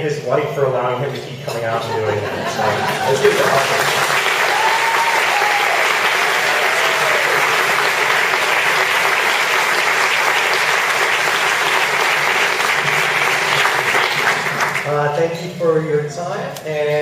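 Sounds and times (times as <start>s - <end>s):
audience applauding: 2.5s - 15.0s.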